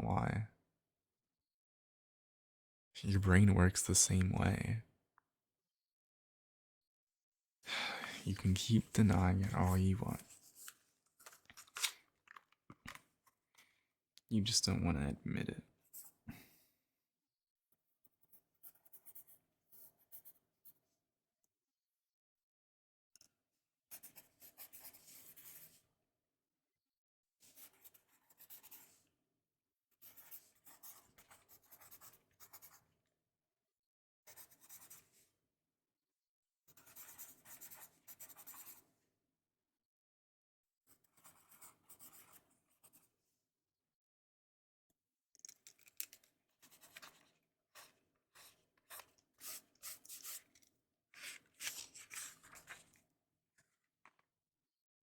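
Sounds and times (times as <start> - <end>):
pen writing on paper: 23.9 - 25.7, 27.5 - 28.9, 30.0 - 32.8, 34.3 - 35.1, 36.7 - 38.8, 40.9 - 43.0, 46.6 - 50.5.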